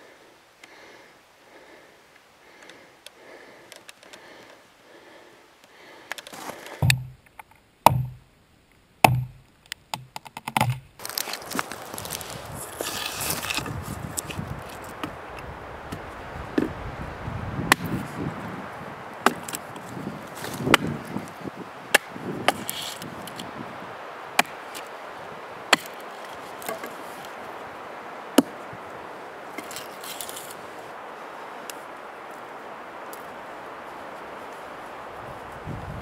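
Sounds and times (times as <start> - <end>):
axe chopping wood: 6.8 - 7.2, 7.9 - 8.2, 9.0 - 10.9, 17.7 - 18.0, 19.2 - 19.6, 20.6 - 21.0, 24.4 - 24.7, 25.7 - 26.0, 28.4 - 28.6.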